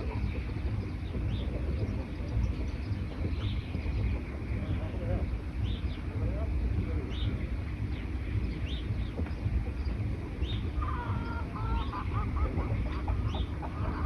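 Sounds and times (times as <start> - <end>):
steady low rumble: 0.0 - 14.0
harsh bird chattering call: 10.4 - 14.0.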